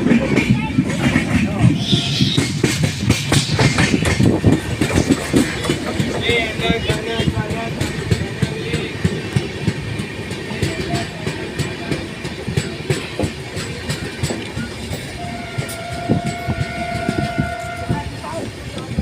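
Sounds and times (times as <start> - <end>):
train wheels clicking over rail joints: 0.0 - 19.0
train horn blast: 15.1 - 18.2.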